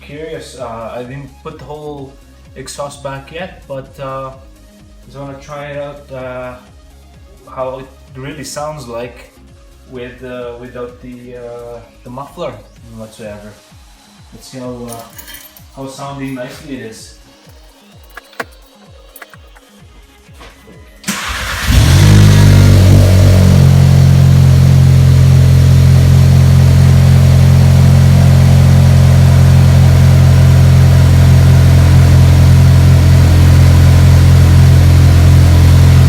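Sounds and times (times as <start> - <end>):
loud car engine idling: 21.1 - 36.0.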